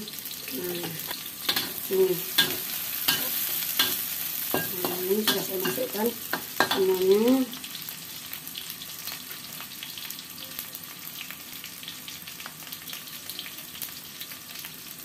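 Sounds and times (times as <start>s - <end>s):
vegetables sizzling in oil: 0.0s - 15.0s
spatula scraping wok: 0.7s - 7.2s.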